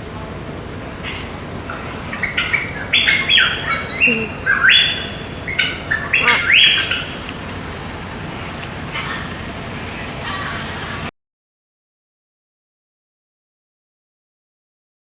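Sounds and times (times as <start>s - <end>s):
steady background hiss: 0.0s - 11.1s
parrot squawking: 1.7s - 7.7s, 8.3s - 11.1s.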